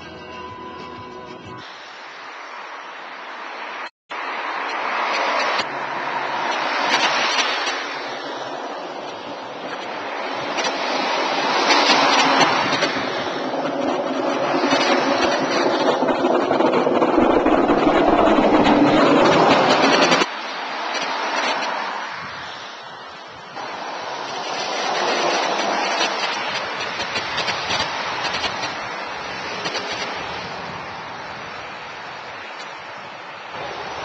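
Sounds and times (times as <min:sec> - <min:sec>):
road traffic passing: 0:00.0 - 0:34.0
heavy engine hum: 0:05.7 - 0:20.3.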